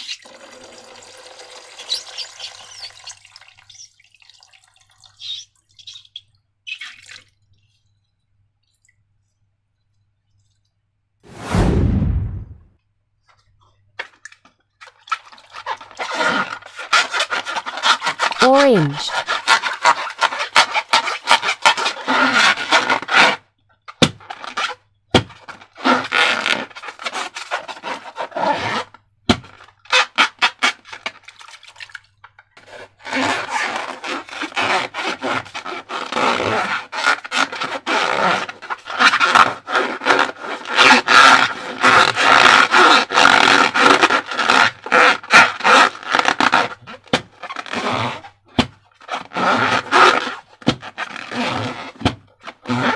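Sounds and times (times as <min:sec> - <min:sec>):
balloon squeaking and crackling: 0:01.8 - 0:03.9, 0:15.4 - 0:23.4, 0:24.0 - 0:31.1, 0:32.7 - 0:48.4, 0:49.0 - 0:52.9.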